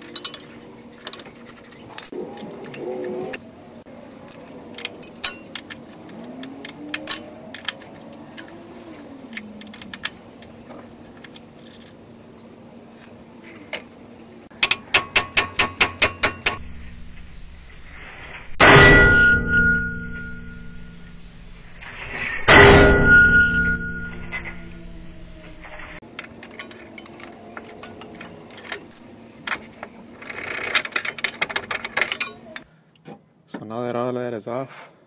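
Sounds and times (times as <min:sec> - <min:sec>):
metal tools clicking and clinking: 0:00.0 - 0:03.5, 0:04.2 - 0:13.6, 0:14.5 - 0:16.6, 0:26.0 - 0:32.7
loud ringing metallic clang: 0:14.6 - 0:17.2, 0:18.6 - 0:21.2, 0:22.5 - 0:25.5.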